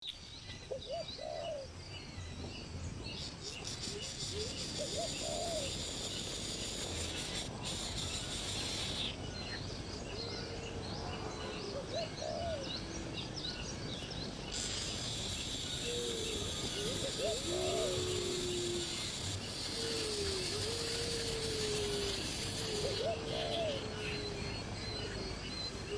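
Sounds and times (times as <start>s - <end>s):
insect drone: 0.0s - 25.9s
low hooked bird calls: 3.2s - 9.6s, 14.4s - 25.9s.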